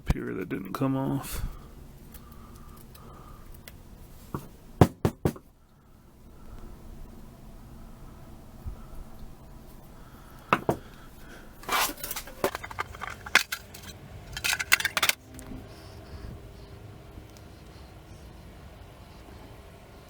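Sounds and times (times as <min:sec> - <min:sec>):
small metal parts clinking: 0:11.6 - 0:15.5.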